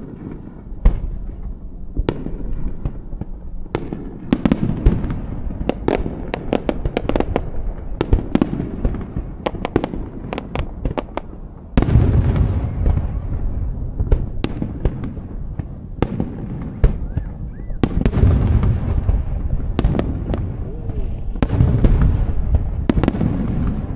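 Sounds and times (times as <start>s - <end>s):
fireworks cracks and bangs: 0.0s - 23.9s
heavy firework boom: 0.0s - 23.9s.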